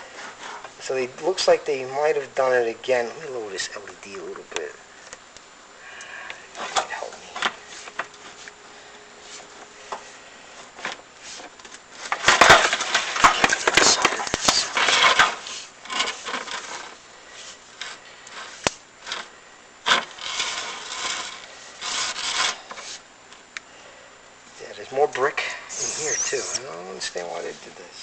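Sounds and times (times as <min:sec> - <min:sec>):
camera rig scraping flue walls: 0:09.2 - 0:23.0.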